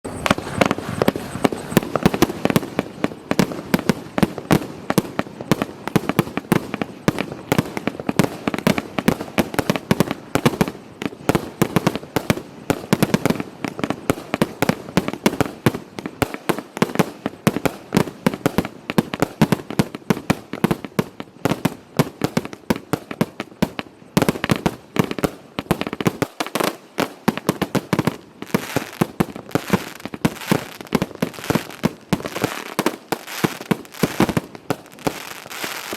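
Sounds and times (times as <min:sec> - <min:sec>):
firework crackle: 0:00.0 - 0:35.9
firework barrage bangs: 0:00.1 - 0:13.4.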